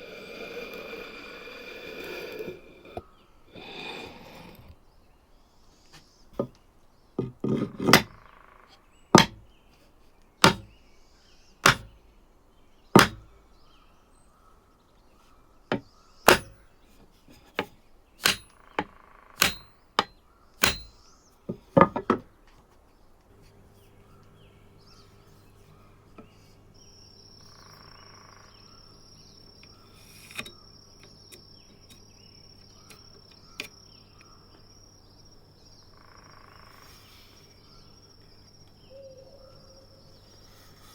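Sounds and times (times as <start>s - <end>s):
sharp metallic knocks: 7.9s - 8.2s, 9.2s - 9.4s, 10.4s - 10.7s, 11.6s - 12.0s, 13.0s - 13.3s, 15.7s - 16.7s, 17.6s - 21.0s
low electrical hum: 8.8s - 40.8s.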